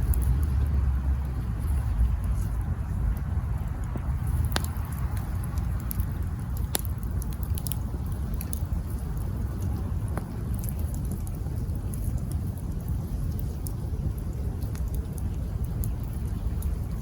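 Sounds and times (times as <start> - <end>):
campfire crackling: 0.0 - 17.0
fire low rumble: 0.0 - 17.0.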